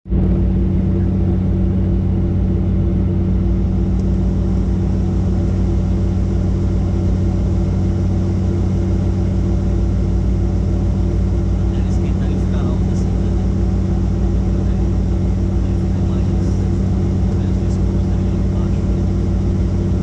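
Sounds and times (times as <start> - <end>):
helicopter engine and rotor drone: 0.1 - 20.0.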